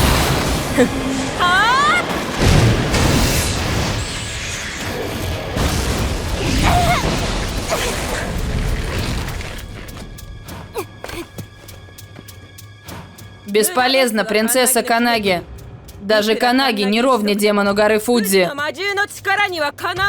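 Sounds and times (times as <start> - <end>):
action soundtrack music: 0.0 - 20.0
sparse clicks: 4.0 - 13.6, 14.7 - 16.5.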